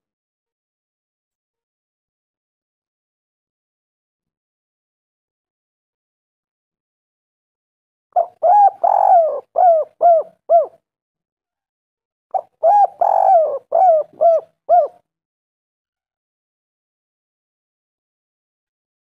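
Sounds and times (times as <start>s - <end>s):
dove cooing: 8.2s - 10.8s, 12.3s - 15.0s.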